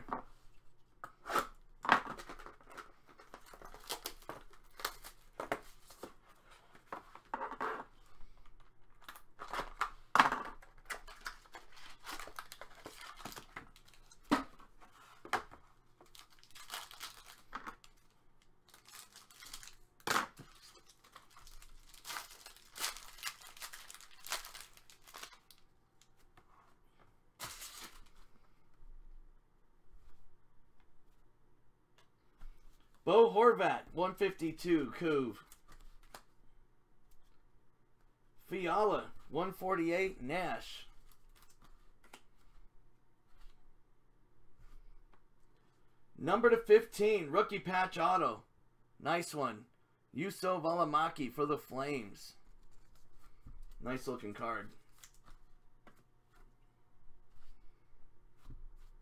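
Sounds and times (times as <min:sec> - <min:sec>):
wrappers tearing and crinkling: 0:10.8 - 0:14.2, 0:16.0 - 0:18.1, 0:18.7 - 0:25.6, 0:27.4 - 0:28.1.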